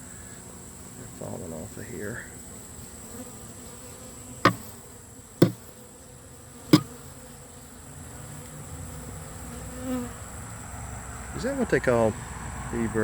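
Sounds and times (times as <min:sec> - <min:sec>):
bees buzzing: 0:00.0 - 0:10.6
sharp knocks: 0:04.5 - 0:04.7, 0:05.4 - 0:05.7.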